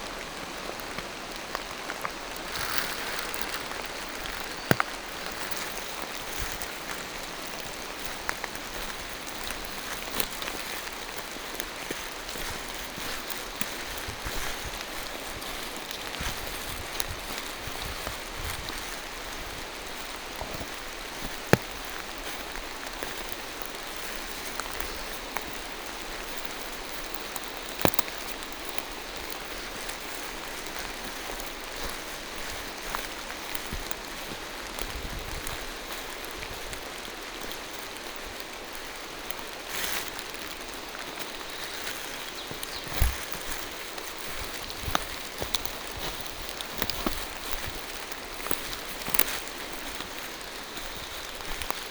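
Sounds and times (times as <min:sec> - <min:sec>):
rain falling through forest: 0:00.0 - 0:51.9
water drips tapping: 0:01.0 - 0:16.7.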